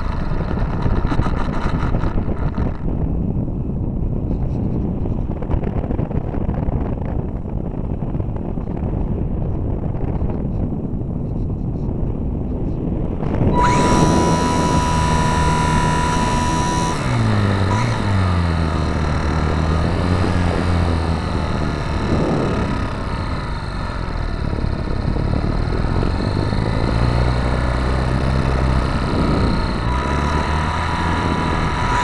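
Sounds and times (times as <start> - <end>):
model plane motor humming: 0.0 - 3.0, 13.2 - 32.0
wind rushing over microphone: 0.0 - 32.0
thin high whine: 13.2 - 32.0.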